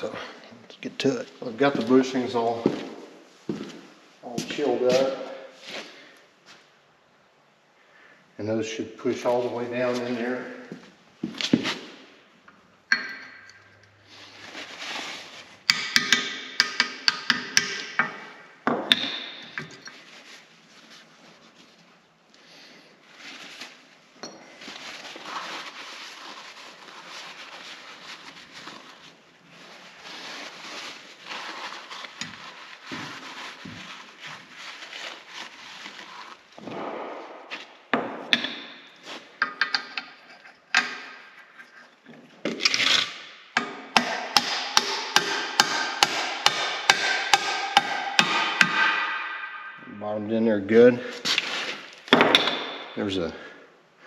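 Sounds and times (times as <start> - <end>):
handling noise: 23.1 - 43.0
hammer striking steel: 43.6 - 49.8.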